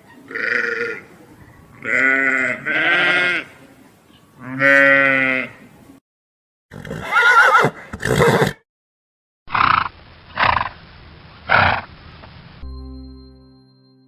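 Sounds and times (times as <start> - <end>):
raspy animal call: 0.1 - 1.1, 1.8 - 3.6
farm animal bleating: 0.3 - 1.1, 1.8 - 3.6, 4.3 - 5.6.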